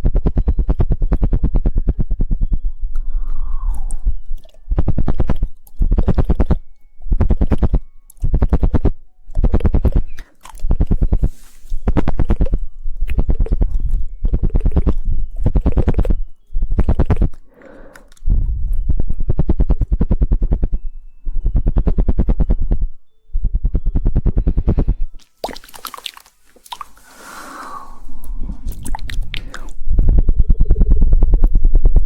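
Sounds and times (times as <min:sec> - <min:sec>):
rapid tongue clicking: 0:00.0 - 0:20.8, 0:24.1 - 0:27.0, 0:28.2 - 0:32.0
wet mouth sounds: 0:02.9 - 0:16.2, 0:16.8 - 0:20.6, 0:24.8 - 0:30.1.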